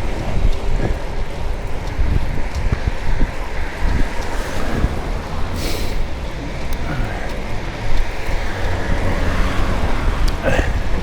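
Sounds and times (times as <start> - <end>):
vehicle road noise rumble: 0.0 - 11.0.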